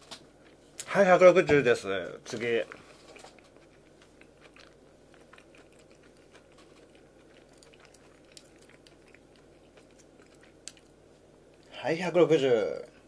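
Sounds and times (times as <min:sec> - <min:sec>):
faint chewing of crunchy food: 0:00.0 - 0:01.0, 0:01.9 - 0:11.8.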